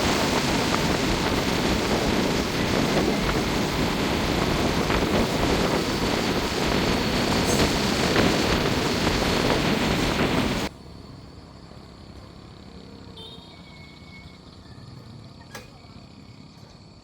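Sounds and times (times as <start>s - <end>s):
loud steady rushing noise: 0.0s - 10.7s
quiet outdoor background: 10.7s - 17.0s.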